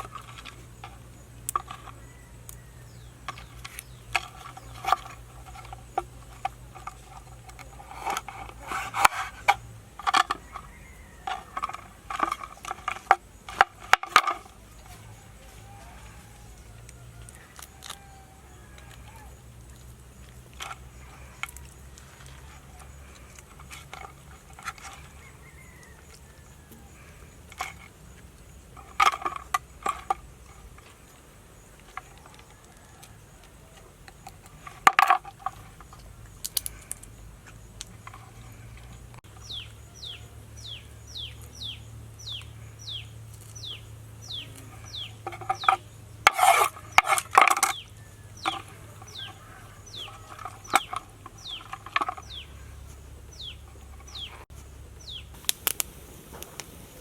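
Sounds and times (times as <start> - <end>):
bird chirping: 0.0 - 12.8, 35.6 - 57.0.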